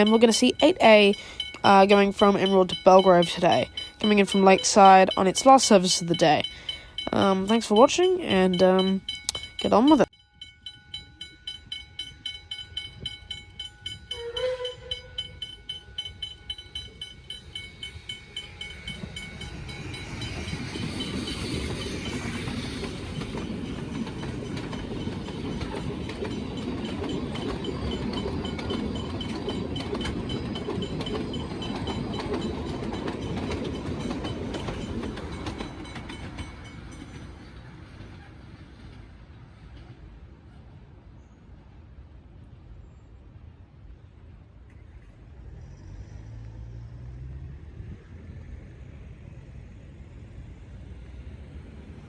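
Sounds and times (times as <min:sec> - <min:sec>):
level crossing bells ringing: 0:00.0 - 0:37.2
steam locomotive passing: 0:00.0 - 0:52.0
steam whistle blast: 0:14.1 - 0:15.4.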